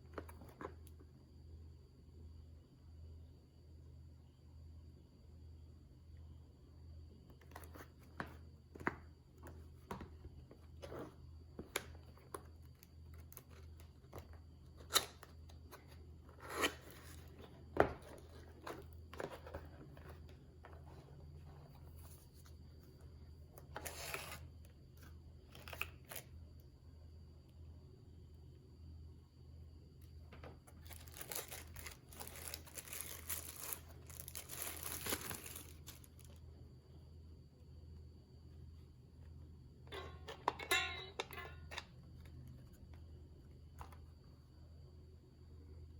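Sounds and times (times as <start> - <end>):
packaging rustling: 30.7 - 36.3.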